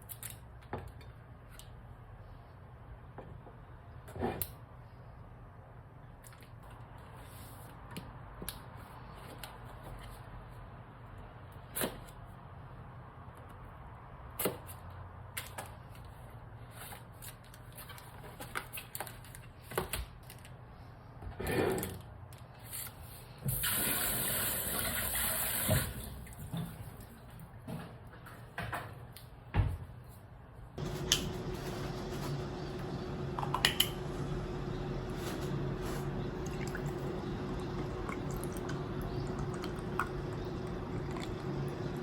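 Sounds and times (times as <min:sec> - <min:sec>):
water running from tap: 0:23.6 - 0:26.1, 0:32.6 - 0:42.0.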